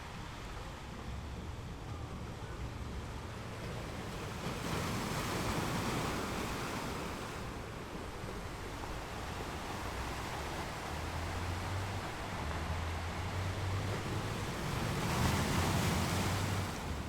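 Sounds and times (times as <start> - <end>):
sea waves breaking on rocks: 3.8 - 17.0.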